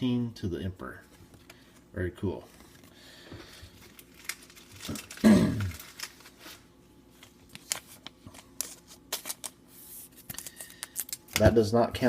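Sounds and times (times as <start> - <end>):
foil wrapper crinkling: 3.6 - 11.4.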